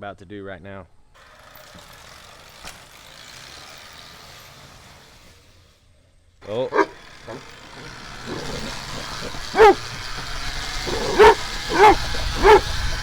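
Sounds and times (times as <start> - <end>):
dog barking: 6.6 - 13.0.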